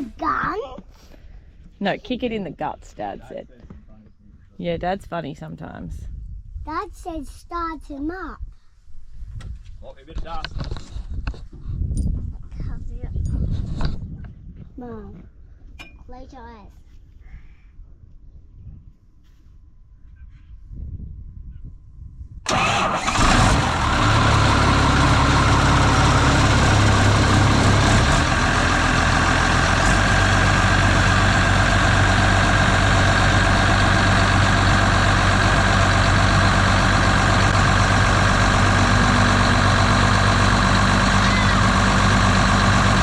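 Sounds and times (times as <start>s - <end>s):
diesel engine starting and running: 22.4s - 43.0s.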